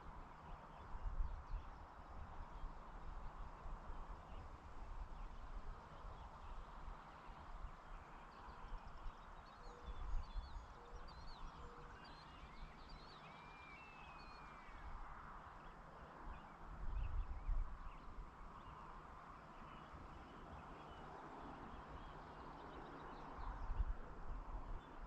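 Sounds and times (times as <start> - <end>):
low wind rumble: 14.6 - 25.0.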